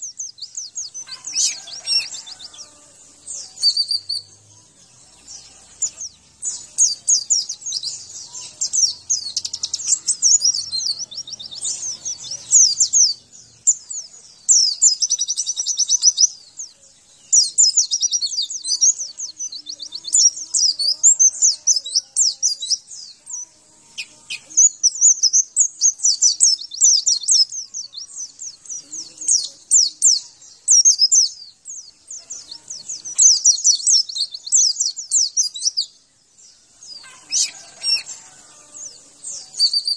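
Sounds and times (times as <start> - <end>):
bird twittering trills: 0.0 - 39.9.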